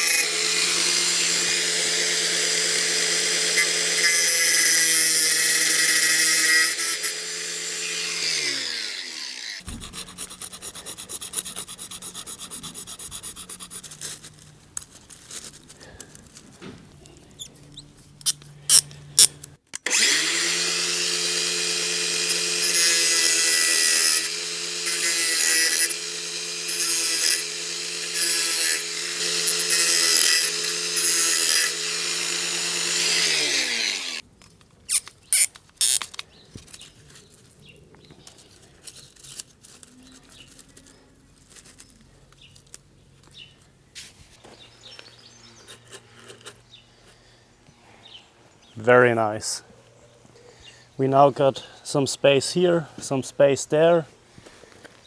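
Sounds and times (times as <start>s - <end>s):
power tool cutting metal track: 0.0s - 13.8s, 18.2s - 34.2s.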